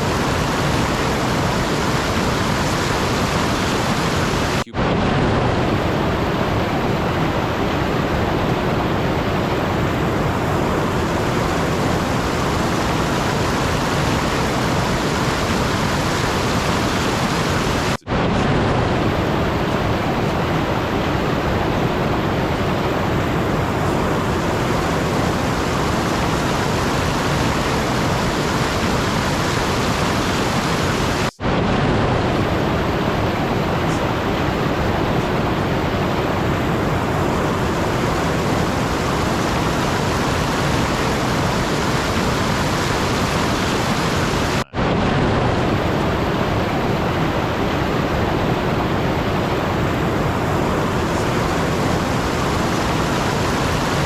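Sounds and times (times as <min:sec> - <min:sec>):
steady rushing noise: 0:00.0 - 0:54.0.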